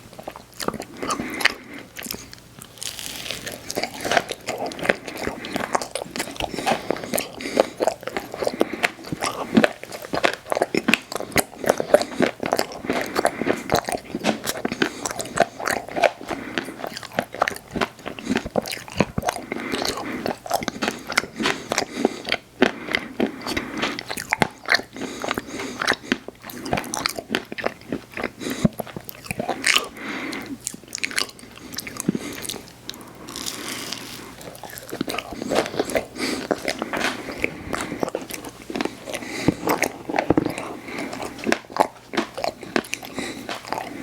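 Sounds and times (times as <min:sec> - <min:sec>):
person crunching ice cream: 0:00.0 - 0:44.0.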